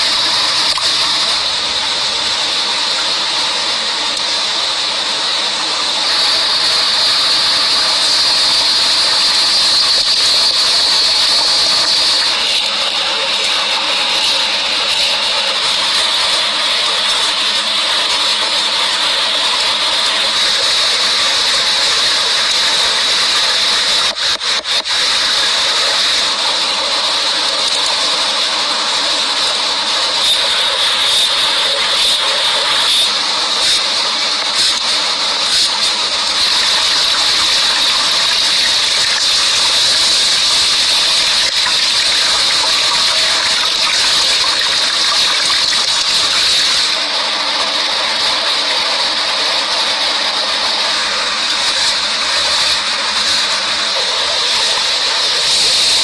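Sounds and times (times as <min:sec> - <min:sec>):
loud hissing rush: 0:00.0 - 0:24.0.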